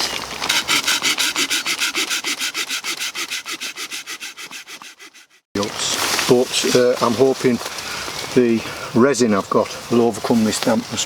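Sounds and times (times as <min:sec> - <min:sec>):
hand saw cutting wood: 0:00.0 - 0:05.5.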